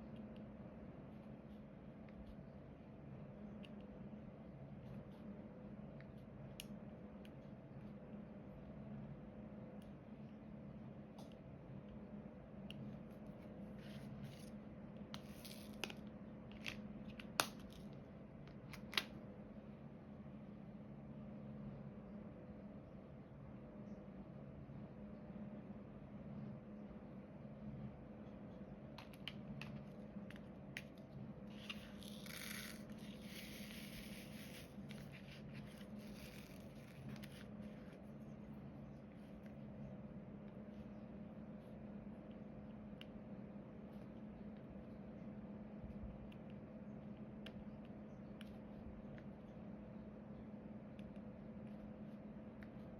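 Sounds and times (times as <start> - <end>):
low steady hum: 0.0 - 52.9
small clicks and scrapes: 29.0 - 38.0.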